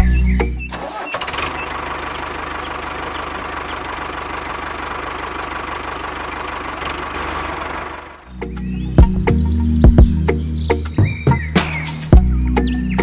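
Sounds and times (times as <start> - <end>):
toy tractor pulsing hum: 0.0 - 8.3.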